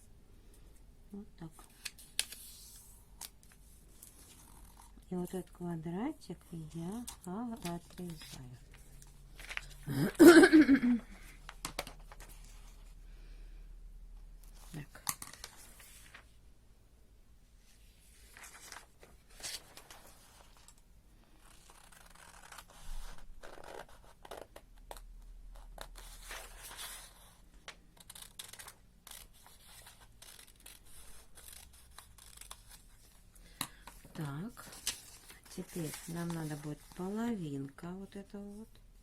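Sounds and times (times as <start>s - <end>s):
paper rustling: 7.0s - 9.8s, 14.6s - 16.3s, 18.1s - 20.8s, 33.8s - 37.2s.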